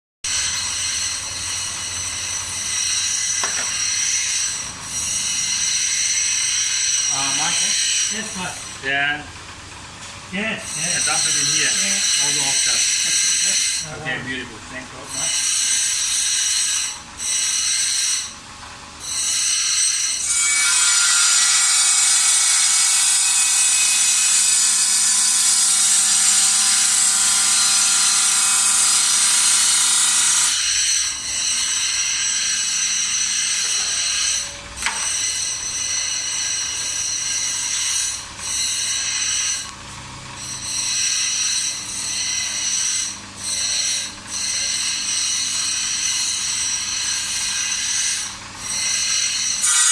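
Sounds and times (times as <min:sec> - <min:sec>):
grinding wheel whine on stone: 0:00.3 - 0:49.9.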